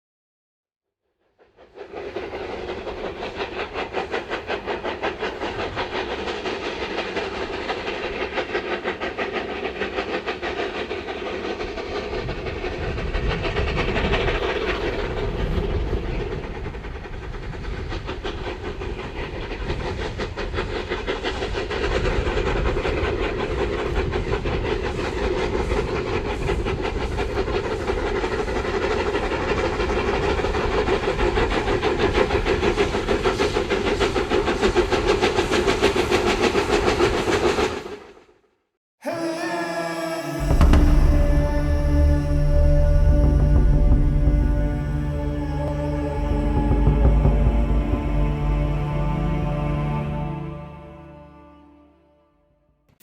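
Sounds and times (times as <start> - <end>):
steam locomotive exhaust chuffs: 1.3 - 38.1, 39.0 - 51.9
steam hiss: 1.5 - 38.1, 39.0 - 50.1
heavy low rumble: 39.6 - 52.0.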